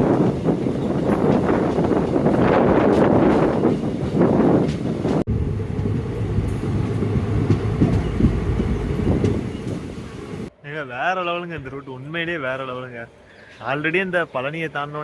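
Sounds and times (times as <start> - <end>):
train rumbling on rails: 0.0 - 10.6.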